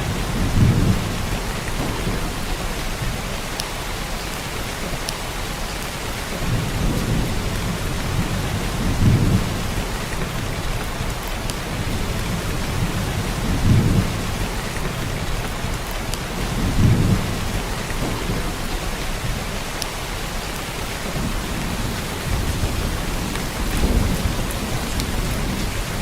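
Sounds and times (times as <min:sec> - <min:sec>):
heavy rain downpour: 0:00.0 - 0:26.0.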